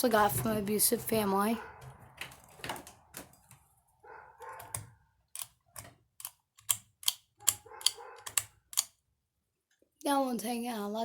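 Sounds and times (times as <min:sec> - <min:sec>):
sharp clicks: 0:04.6 - 0:09.0.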